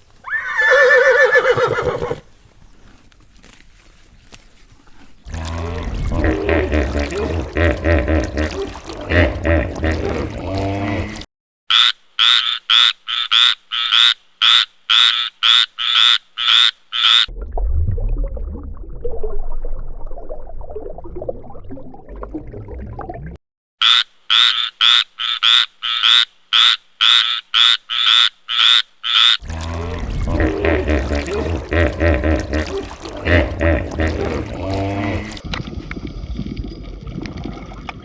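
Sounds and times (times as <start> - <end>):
low rumbling noise: 17.3 - 21.6.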